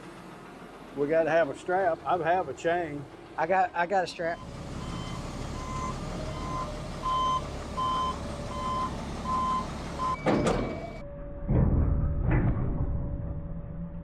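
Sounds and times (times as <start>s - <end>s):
truck engine idling: 0.0s - 11.0s
truck backup alarm beeping: 4.2s - 11.4s
thump: 10.2s - 13.1s.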